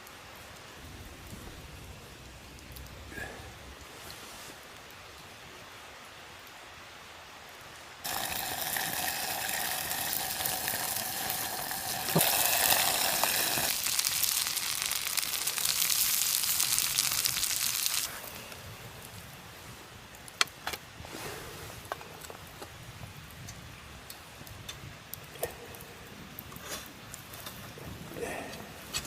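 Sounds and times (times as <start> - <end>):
chicken sizzling in sandwich maker: 8.0 - 18.1.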